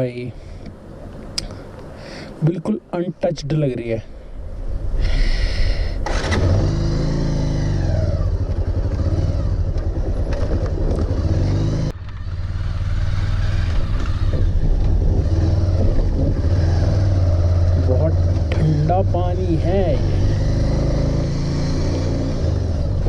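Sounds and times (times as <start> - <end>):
motorcycle engine running: 6.4 - 23.0.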